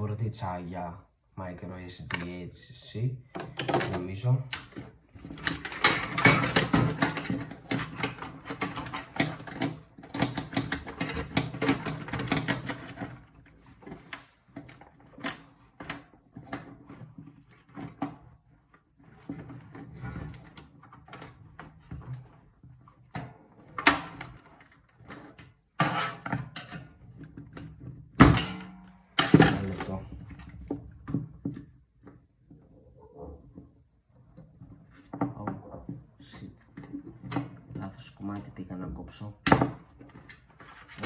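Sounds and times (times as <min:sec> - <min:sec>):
scattered clicks and knocks: 0:03.4 - 0:16.7.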